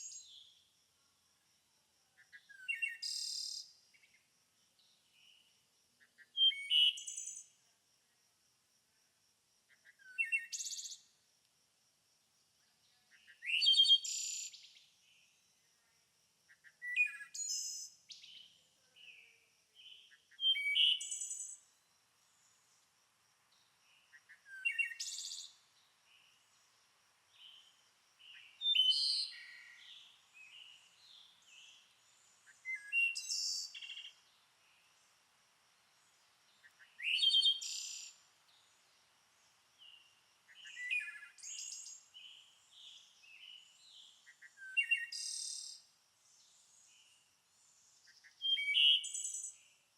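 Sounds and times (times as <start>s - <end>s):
songbird singing: 0.0s - 8.3s, 8.9s - 11.3s, 12.4s - 49.9s
soft bird chirps: 2.2s - 7.6s, 16.5s - 49.8s.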